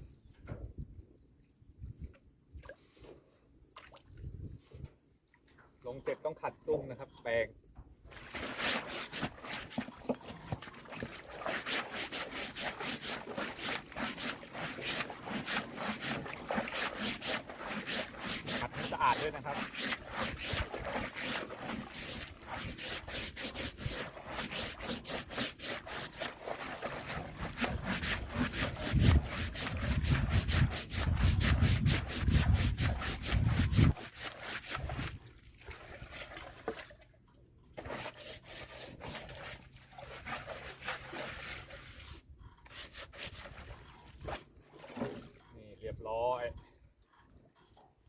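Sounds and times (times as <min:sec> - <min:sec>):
brush scrubbing: 0:08.2 - 0:35.1, 0:37.8 - 0:43.7
faint scrapes: 0:11.4 - 0:35.0.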